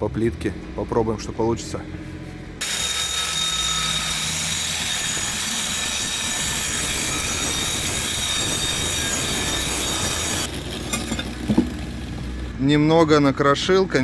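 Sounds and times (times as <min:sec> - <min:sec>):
angle grinder cutting tile: 0:02.6 - 0:12.3.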